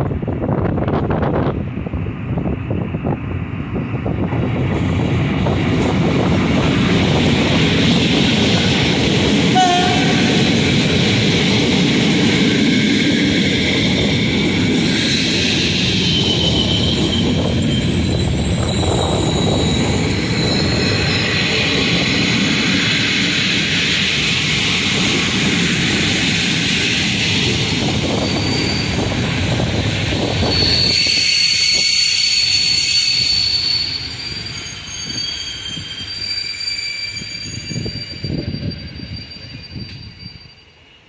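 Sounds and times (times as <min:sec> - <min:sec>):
wheels rumbling on rails: 0:00.0 - 0:31.1
high wheel squealing: 0:14.7 - 0:22.3, 0:27.8 - 0:29.6, 0:30.2 - 0:40.8.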